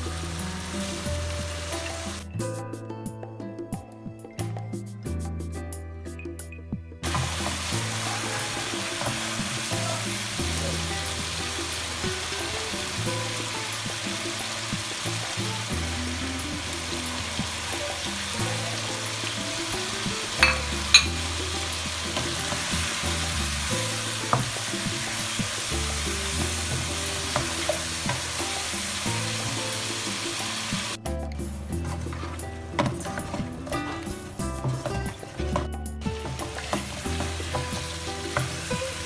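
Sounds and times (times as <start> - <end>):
chicken sizzling in hot oil: 0.0 - 2.3, 7.0 - 31.0, 36.2 - 39.0
spatula stirring in pan: 17.1 - 30.7, 31.7 - 39.0.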